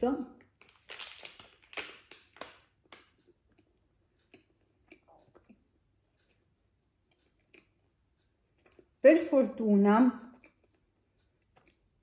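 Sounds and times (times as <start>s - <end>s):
chocolate bar crunching: 0.4s - 5.6s
chewing clicks: 2.9s - 9.0s, 10.3s - 11.9s.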